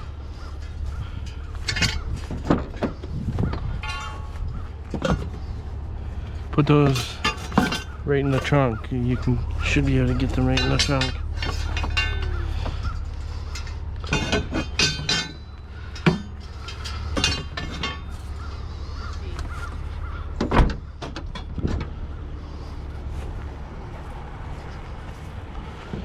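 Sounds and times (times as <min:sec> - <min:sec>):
crow-like calls: 0:00.0 - 0:02.1, 0:07.7 - 0:14.0, 0:15.6 - 0:17.2, 0:17.9 - 0:20.4
low steady hum: 0:00.0 - 0:26.0
scrap items clanking into car trunk: 0:01.6 - 0:05.6, 0:06.8 - 0:08.6.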